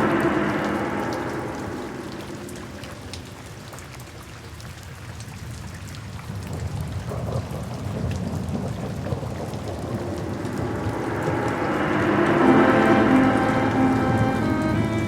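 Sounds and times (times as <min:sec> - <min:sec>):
steady rain falling: 0:00.0 - 0:15.0
rumble of thunder: 0:06.3 - 0:13.7.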